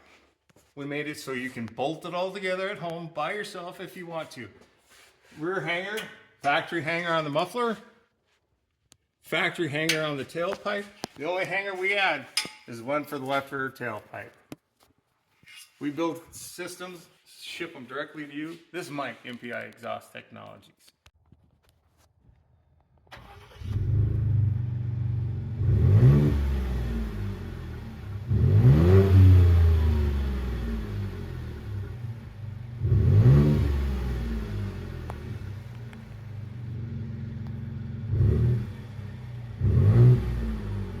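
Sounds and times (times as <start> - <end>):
truck engine idling and revving: 23.3 - 41.0.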